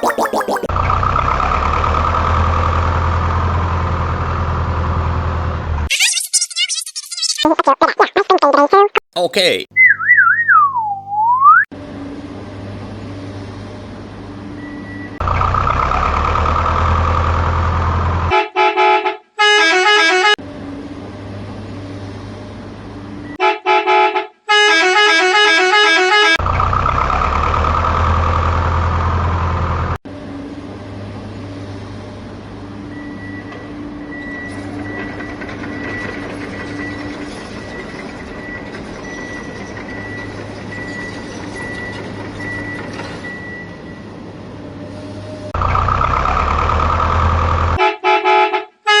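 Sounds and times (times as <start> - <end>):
vehicle horn honking: 47.8 - 49.0.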